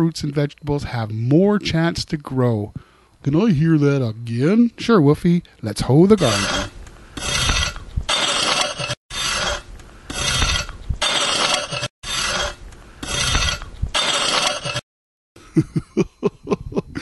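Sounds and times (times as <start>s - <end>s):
hoe scraping soil: 6.1s - 14.8s.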